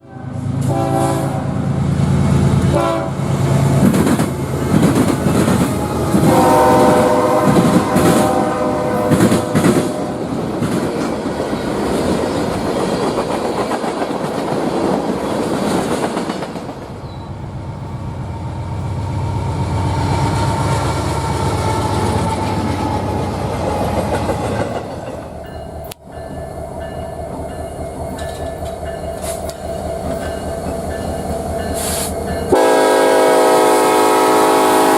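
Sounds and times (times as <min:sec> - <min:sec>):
train horn blasts: 0:00.0 - 0:01.8, 0:02.6 - 0:03.7, 0:05.6 - 0:10.5, 0:31.8 - 0:34.9
train cars clattering on rails: 0:03.6 - 0:17.4, 0:20.0 - 0:32.9.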